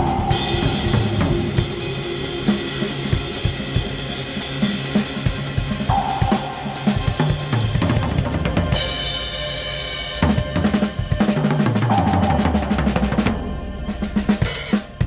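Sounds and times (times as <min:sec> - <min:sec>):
acoustic drum kit: 0:00.0 - 0:15.0
sustained ringing tone: 0:05.9 - 0:08.9.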